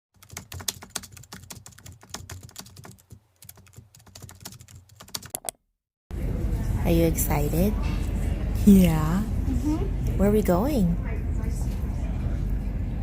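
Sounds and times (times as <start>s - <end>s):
typing on computer keyboard: 0.2s - 5.6s.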